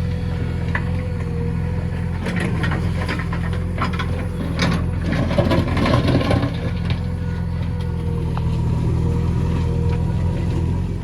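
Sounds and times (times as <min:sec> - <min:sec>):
diesel engine running: 0:00.0 - 0:11.0
scraping and clattering knocks: 0:02.2 - 0:07.1.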